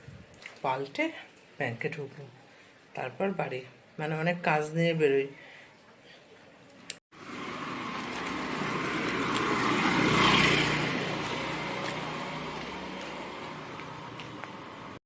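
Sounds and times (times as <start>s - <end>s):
vehicle passing by: 7.2s - 15.0s.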